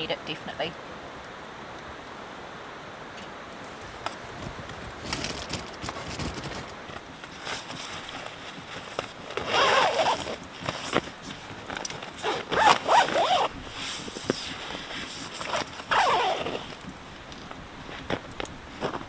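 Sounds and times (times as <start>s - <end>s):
small clicks and rustles: 3.1s - 19.0s
zipper being pulled: 7.3s - 16.9s.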